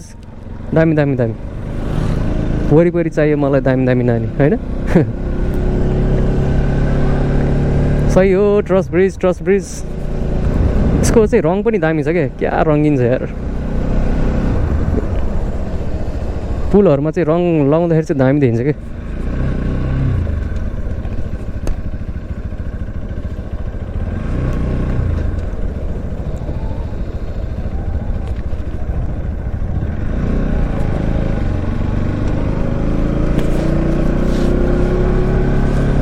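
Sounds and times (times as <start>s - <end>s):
motorcycle engine running: 0.0s - 36.0s
wind on microphone: 10.4s - 11.4s.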